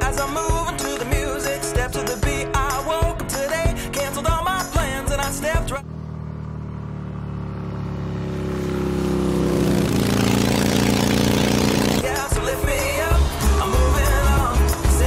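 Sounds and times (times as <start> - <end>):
song playing: 0.0 - 5.8, 11.9 - 15.0
motorcycle engine running: 3.0 - 15.0.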